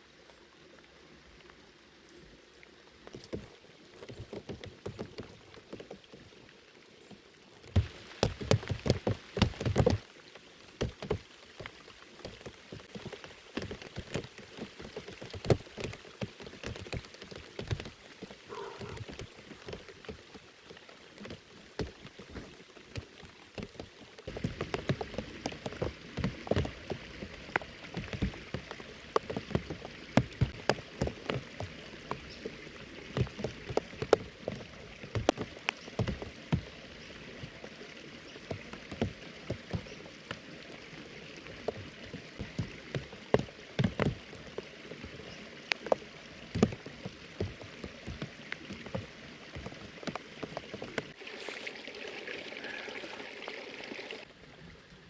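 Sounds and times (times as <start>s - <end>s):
raindrops tapping on a surface: 3.0s - 51.2s
heavy rain hissing: 51.1s - 54.2s.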